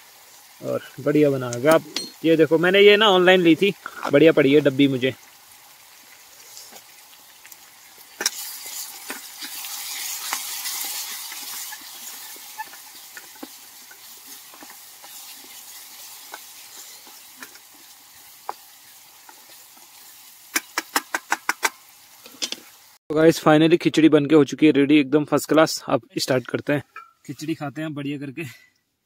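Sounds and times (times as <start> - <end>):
food sizzling in a metal pot: 0.0 - 23.0
spoon knocking against pot: 1.9 - 2.2
wooden spoon stirring and scraping: 8.0 - 20.4.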